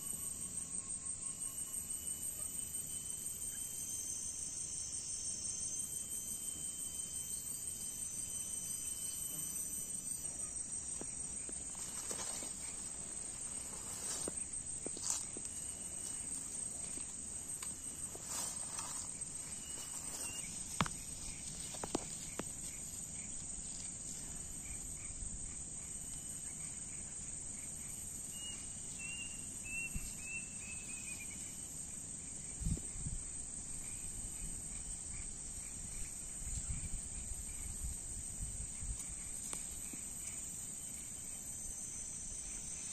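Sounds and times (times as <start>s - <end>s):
high insect drone: 0.0s - 42.9s
chirps: 17.9s - 22.5s, 28.2s - 31.6s.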